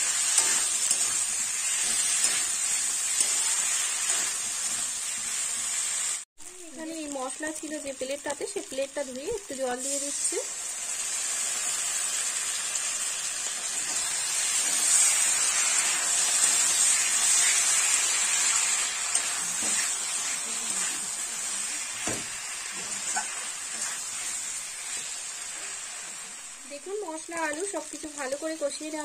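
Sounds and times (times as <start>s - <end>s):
food sizzling in a pan: 0.0s - 29.0s
metal spatula scraping pan: 18.5s - 21.1s.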